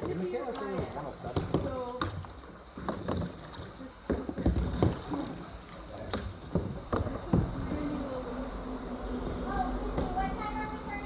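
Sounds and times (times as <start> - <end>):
paddle knocks and splashes: 0.0 - 8.0.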